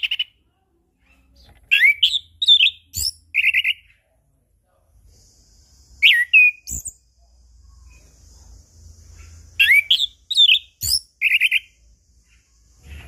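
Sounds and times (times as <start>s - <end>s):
thrush singing whistled notes: 1.7s - 3.8s, 6.0s - 7.0s, 9.3s - 11.9s.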